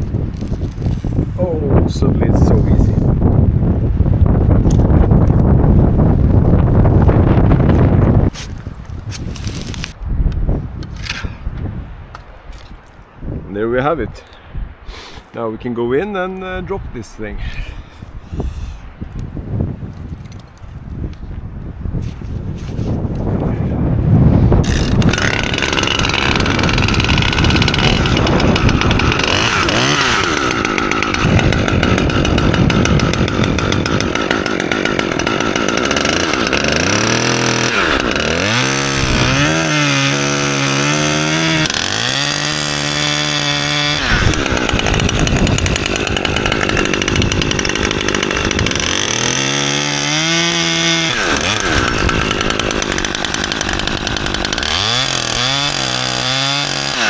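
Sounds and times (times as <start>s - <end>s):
chainsaw cutting a branch: 0.0s - 1.3s, 7.1s - 10.0s, 24.6s - 57.0s.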